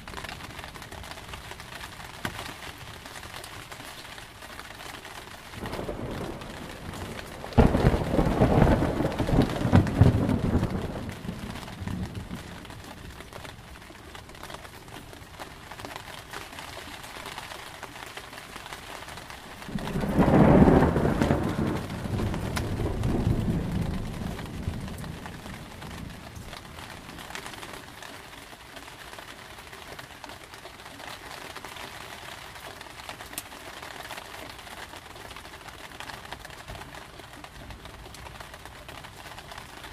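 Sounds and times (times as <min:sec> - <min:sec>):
steady rain: 0:00.0 - 0:39.9
thunder rumbling: 0:05.6 - 0:13.2, 0:19.6 - 0:27.2.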